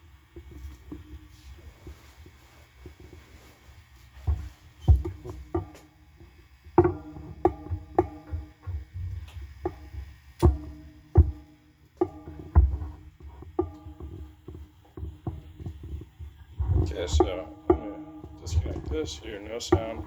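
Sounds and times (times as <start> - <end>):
amplifier hum: 0.0 - 20.0
guitar amplifier pops and crackles: 4.3 - 20.0.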